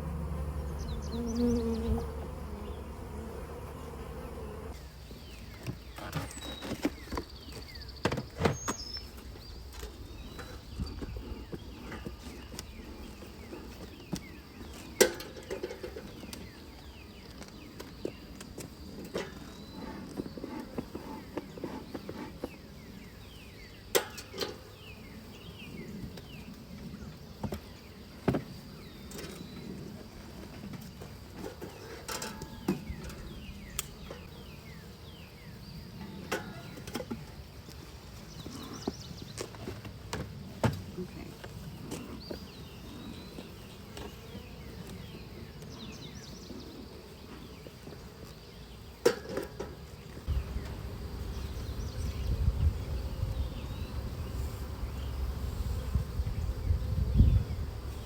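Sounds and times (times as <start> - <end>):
bees buzzing: 0.0 - 4.9, 50.2 - 58.0
small birds chirping: 0.0 - 58.0.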